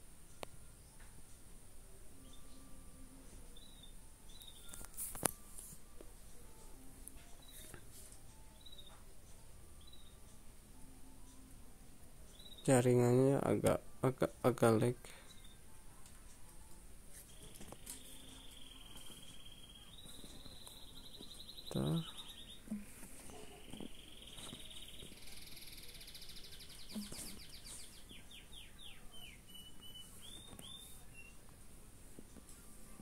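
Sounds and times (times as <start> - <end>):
birds chirping and trilling: 3.5 - 4.8, 8.5 - 10.4, 12.3 - 13.6, 14.8 - 15.7, 17.3 - 31.4.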